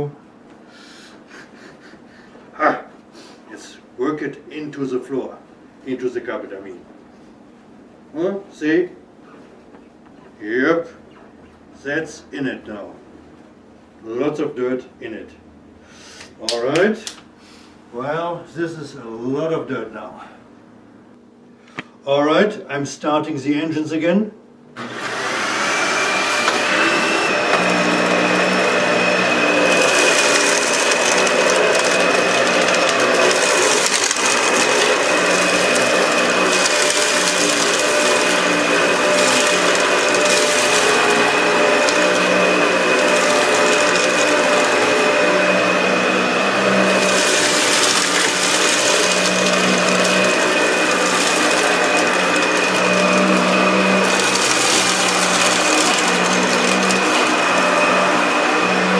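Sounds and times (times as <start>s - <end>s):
vacuum cleaner running on carpet: 24.8s - 58.9s.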